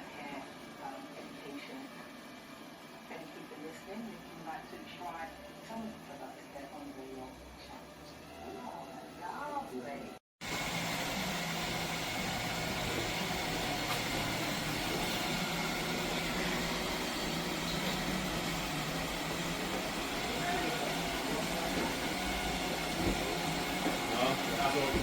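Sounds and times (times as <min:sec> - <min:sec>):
robot vacuum cleaner whirring: 0:10.4 - 0:25.0.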